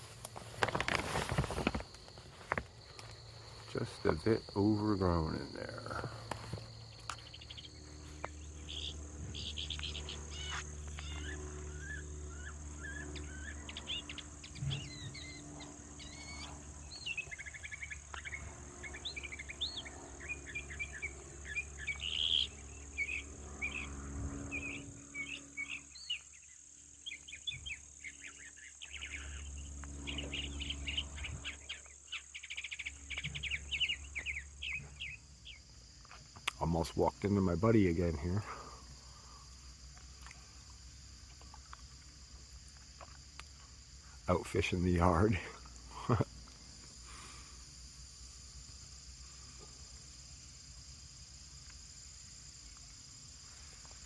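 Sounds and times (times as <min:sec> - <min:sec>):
high-pitched insect trill: 0:00.0 - 0:54.0
songbirds chirping and singing: 0:03.7 - 0:35.7.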